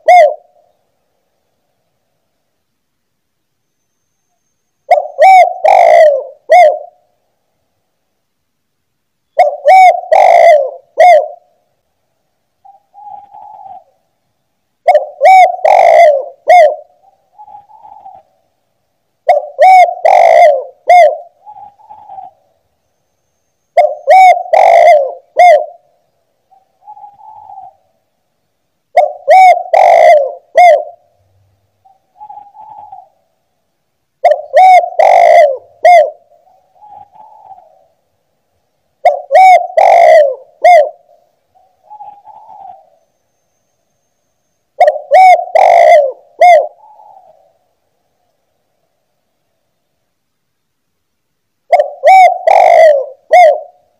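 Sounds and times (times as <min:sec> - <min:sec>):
dove cooing: 0:00.0 - 0:00.8, 0:04.9 - 0:07.1, 0:09.3 - 0:11.6, 0:12.6 - 0:14.0, 0:14.8 - 0:18.4, 0:19.2 - 0:22.5, 0:23.7 - 0:25.9, 0:26.5 - 0:28.0, 0:28.9 - 0:31.2, 0:31.8 - 0:33.3, 0:34.2 - 0:38.0, 0:39.0 - 0:43.1, 0:44.8 - 0:47.6, 0:51.7 - 0:53.9.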